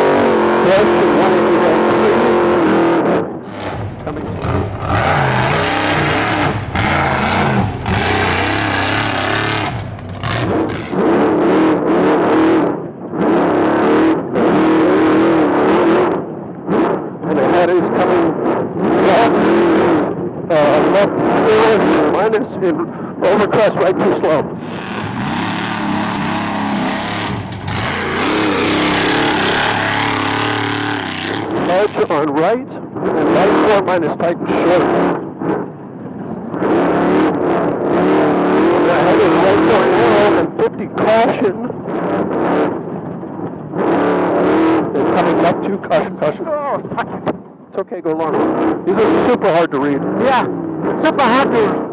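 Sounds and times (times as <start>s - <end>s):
tyre dirt and wind rush: 3.5s - 11.2s, 24.6s - 32.1s
truck engine racing: 3.5s - 11.5s, 24.6s - 32.2s.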